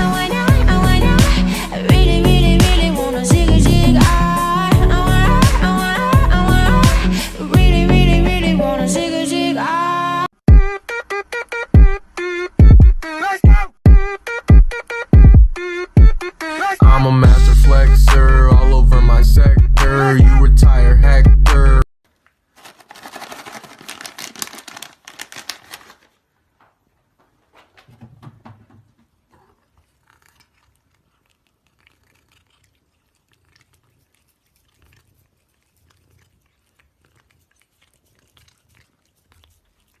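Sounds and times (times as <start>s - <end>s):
cat crunching food: 22.1s - 26.2s, 29.2s - 40.0s.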